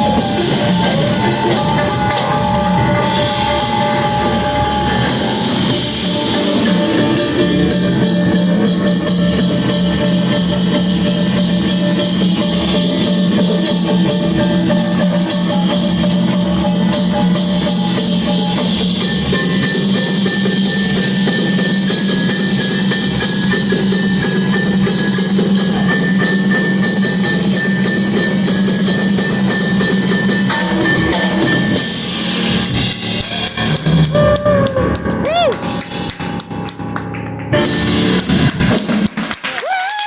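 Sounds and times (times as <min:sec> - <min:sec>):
live rock band playing: 0:00.0 - 0:39.4
drum kit: 0:00.0 - 0:40.0.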